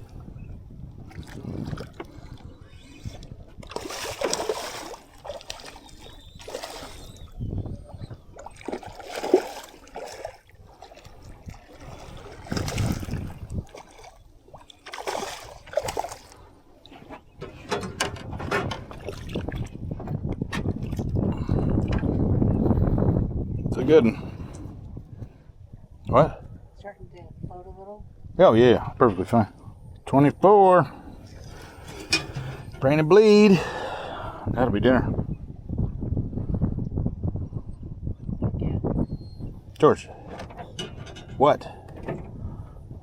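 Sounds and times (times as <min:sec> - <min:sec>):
water splashing and sloshing: 0:00.0 - 0:22.1, 0:31.2 - 0:34.0
bumps and rustles: 0:31.6 - 0:33.0.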